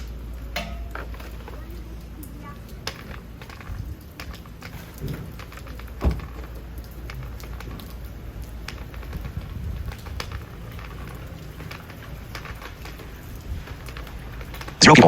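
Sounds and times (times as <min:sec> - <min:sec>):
light rain pattering: 0:00.0 - 0:15.0.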